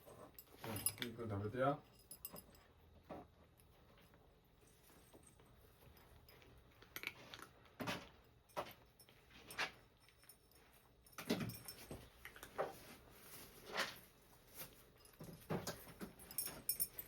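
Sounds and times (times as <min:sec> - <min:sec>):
cat crunching food: 0:05.4 - 0:07.8.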